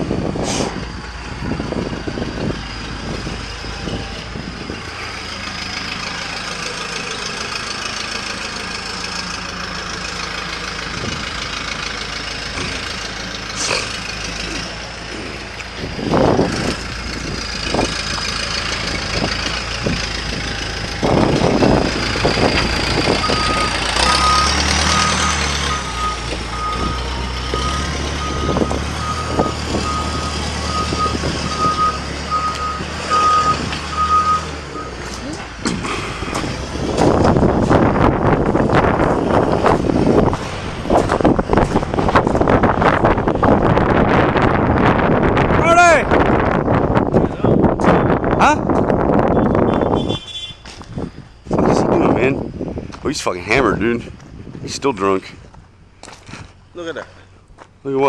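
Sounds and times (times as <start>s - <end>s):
heavy vehicle engine running: 0.0s - 58.0s
reversing alarm beeping: 23.2s - 35.1s.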